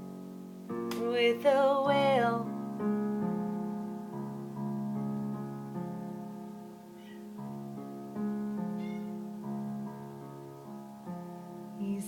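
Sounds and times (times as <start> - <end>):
piano playing slow chords: 0.0 - 12.0
faint high chirps: 8.7 - 9.3.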